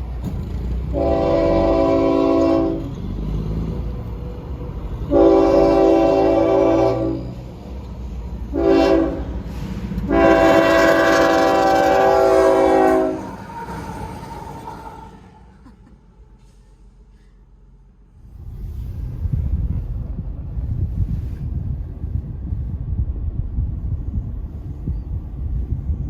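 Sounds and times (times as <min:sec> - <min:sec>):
low rumble of engines: 0:00.0 - 0:26.0
locomotive air horn blasts: 0:00.8 - 0:03.0, 0:05.1 - 0:07.4, 0:08.5 - 0:13.4.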